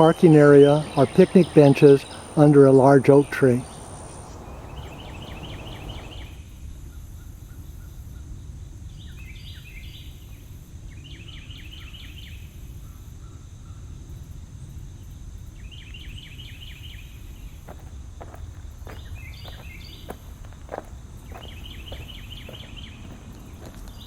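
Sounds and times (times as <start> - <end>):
songbird singing: 0.0 - 6.5, 10.9 - 13.0, 15.6 - 24.0
high insect drone: 0.0 - 6.7, 12.1 - 24.0
footsteps: 17.7 - 24.0.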